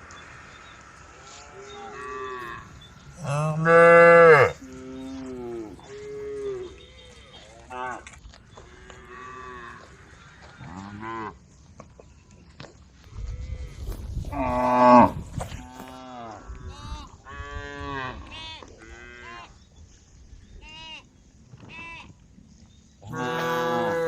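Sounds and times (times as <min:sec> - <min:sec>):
cows mooing: 0:01.2 - 0:06.8, 0:14.3 - 0:16.4, 0:23.1 - 0:24.0.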